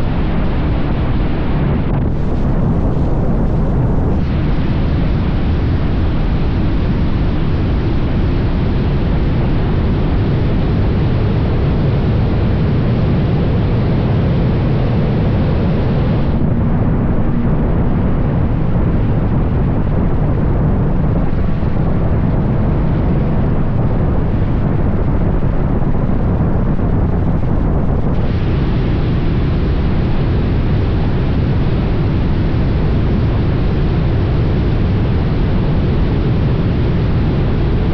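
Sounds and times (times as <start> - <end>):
wind rushing on microphone: 0.0 - 37.9
road noise: 15.9 - 26.2.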